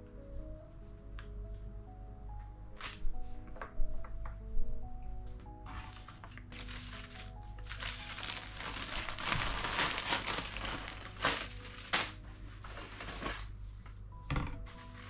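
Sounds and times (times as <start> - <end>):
faint background music: 0.0 - 15.0
packaging crinkling: 2.7 - 3.8, 5.3 - 15.0.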